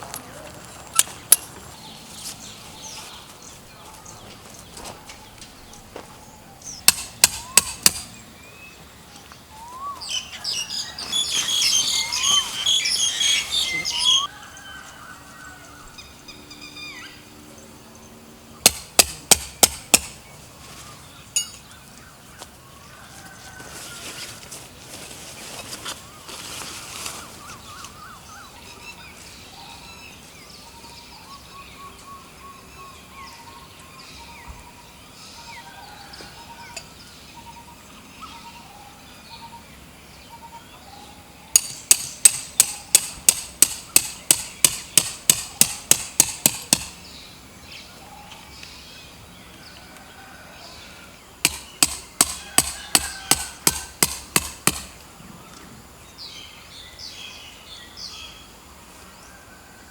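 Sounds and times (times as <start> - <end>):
birds chirping: 0.0 - 24.0, 25.3 - 59.9
tent stakes being hammered: 6.7 - 8.2, 18.6 - 20.3, 41.5 - 47.0, 51.4 - 55.0.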